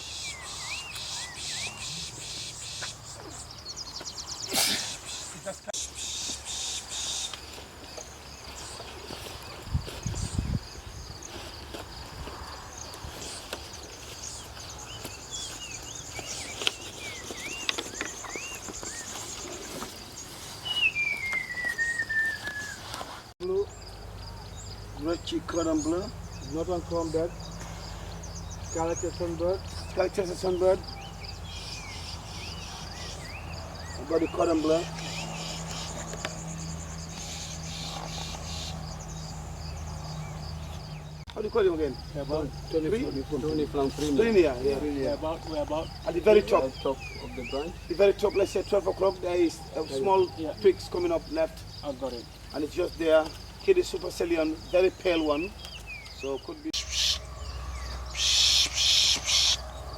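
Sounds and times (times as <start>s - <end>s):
birds whistling: 0.0s - 8.8s, 13.2s - 59.9s
rising bird whistles: 20.6s - 22.9s
insect trill: 23.4s - 59.9s.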